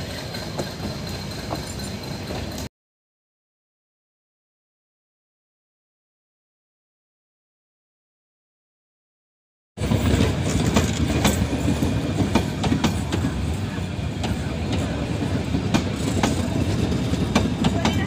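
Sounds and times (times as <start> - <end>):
train wheels rumbling on rail: 0.0 - 2.7, 9.8 - 18.0
wheels clacking over rail joints: 9.9 - 18.0.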